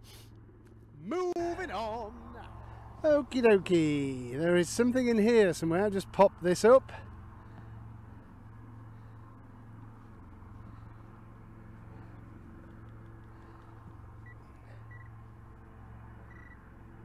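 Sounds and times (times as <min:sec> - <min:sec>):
steady low hum: 0:05.4 - 0:17.0
metal detector beeps: 0:14.2 - 0:15.1, 0:16.2 - 0:16.6.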